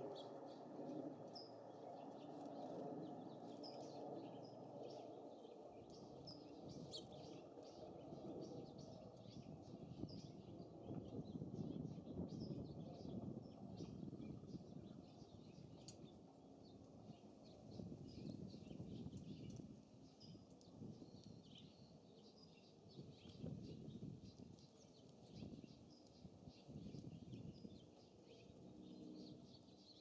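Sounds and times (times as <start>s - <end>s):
songbirds chirping: 0.0s - 30.0s
wind on microphone: 8.2s - 16.1s, 17.6s - 21.8s, 22.8s - 28.0s.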